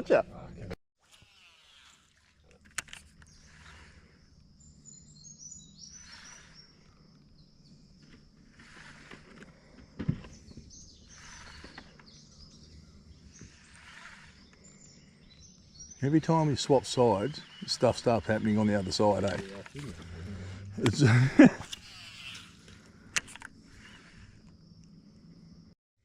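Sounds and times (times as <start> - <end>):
small birds chirping: 2.4 - 25.6
faint low hum: 18.2 - 22.5.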